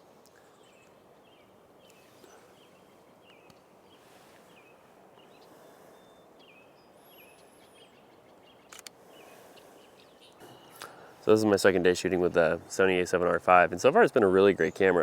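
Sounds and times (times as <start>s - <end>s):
sharp click: 8.7s - 9.0s.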